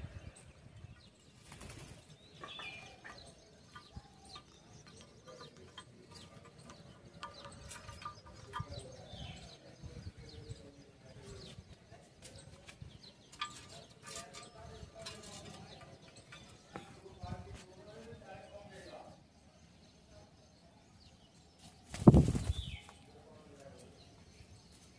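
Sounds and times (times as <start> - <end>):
bird chirps: 0.0 - 24.9
wing flapping: 1.4 - 2.2, 21.8 - 23.0
bird clicks and scuffles: 21.6 - 23.1.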